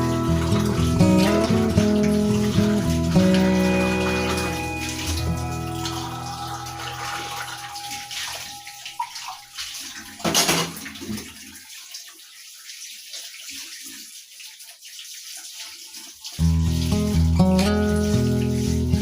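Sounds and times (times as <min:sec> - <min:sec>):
background music: 0:00.0 - 0:09.4
water pouring and splashing: 0:00.0 - 0:19.0.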